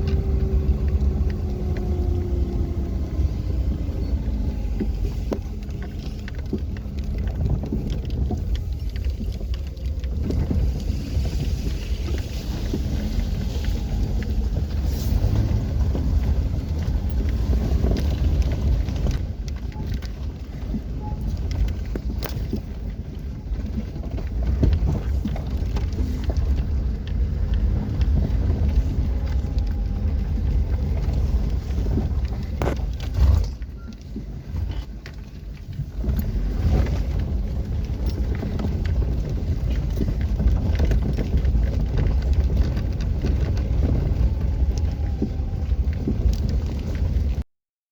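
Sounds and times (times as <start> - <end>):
vehicle driving low rumble: 0.0 - 47.5.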